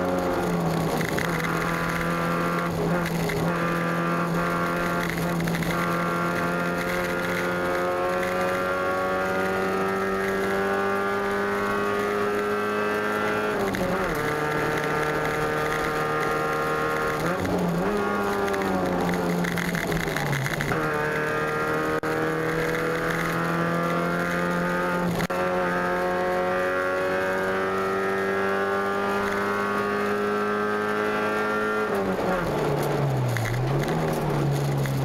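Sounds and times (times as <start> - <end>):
race car engine under load: 0.0 - 35.0.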